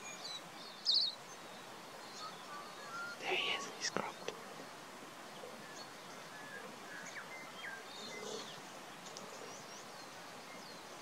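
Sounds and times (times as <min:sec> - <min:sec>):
small birds chirping faintly: 0:00.0 - 0:11.0
steady outdoor hiss: 0:00.0 - 0:11.0.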